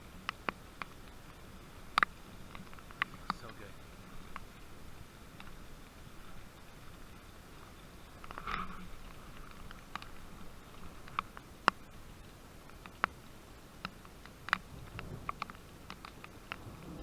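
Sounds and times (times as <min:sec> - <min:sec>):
raindrops dripping: 0:00.0 - 0:17.0
steady falling rain: 0:00.0 - 0:17.0.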